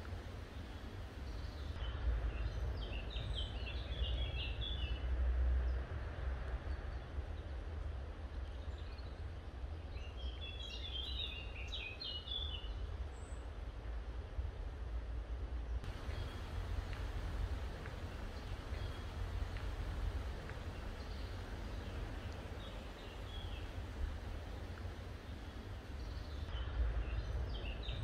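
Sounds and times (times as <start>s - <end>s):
songbird chirping: 0.0s - 5.0s, 9.9s - 13.4s, 15.8s - 28.0s
steady low rumble: 15.8s - 28.0s.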